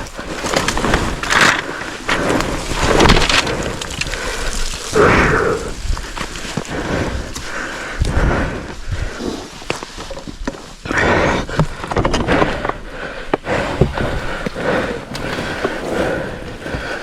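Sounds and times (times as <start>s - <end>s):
wind and road noise: 0.0s - 10.9s.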